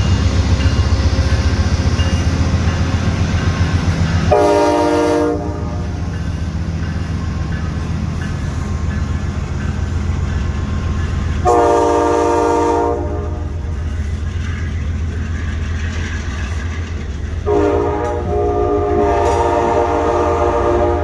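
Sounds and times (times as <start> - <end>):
train rumble: 0.0 - 21.0
locomotive air horn blasts: 4.3 - 6.0, 11.4 - 13.6, 17.4 - 21.0.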